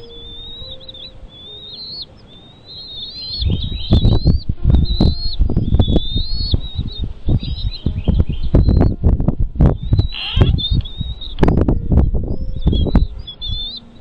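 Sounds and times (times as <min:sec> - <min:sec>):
bird chirping high notes: 0:00.0 - 0:14.0
low thumps: 0:03.4 - 0:13.7.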